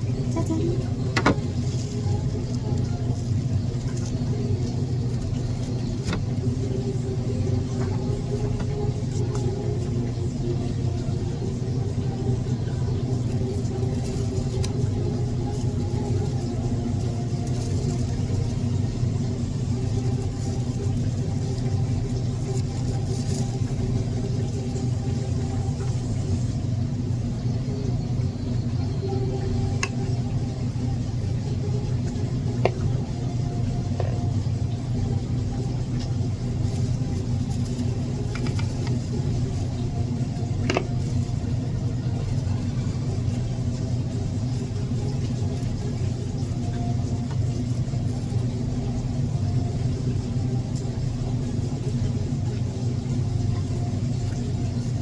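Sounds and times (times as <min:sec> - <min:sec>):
low rumble with hum: 0:00.0 - 0:55.0.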